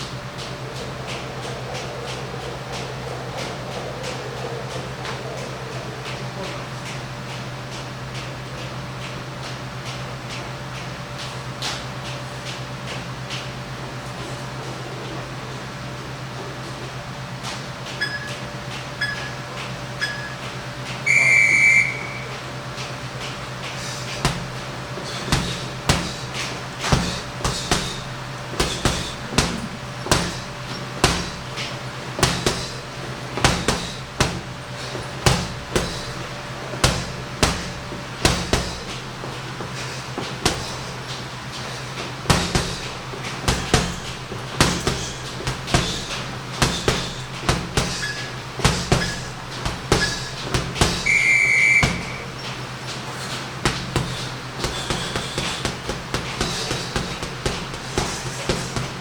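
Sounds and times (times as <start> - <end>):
steady low hum: 0.0 - 59.0
short high beep: 21.1 - 22.3
punches thudding on heavy bag: 23.2 - 52.6, 53.2 - 59.0.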